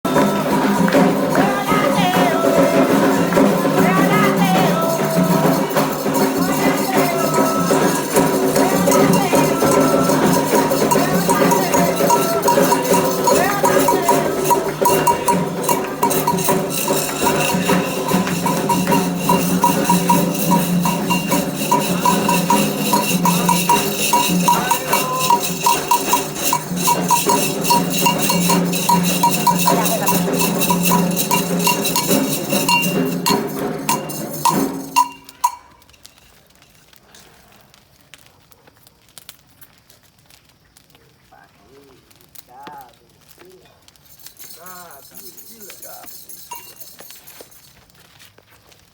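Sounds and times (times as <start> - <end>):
group singing: 0.0 - 35.2
hand percussion: 0.0 - 36.2, 43.9 - 47.8
metal bell struck rhythmically: 0.1 - 36.0, 44.1 - 47.7.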